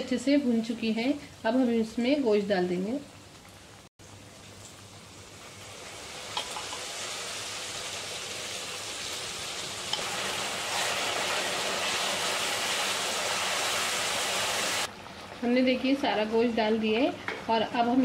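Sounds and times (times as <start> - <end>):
meat sizzling in hot oil: 3.6 - 15.5.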